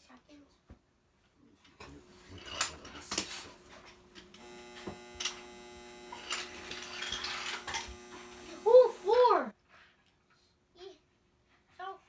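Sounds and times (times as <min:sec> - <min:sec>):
wooden toy trains clacking: 0:01.8 - 0:09.2
small electric motor buzzing: 0:01.8 - 0:09.5
steady electric hum: 0:01.8 - 0:09.5.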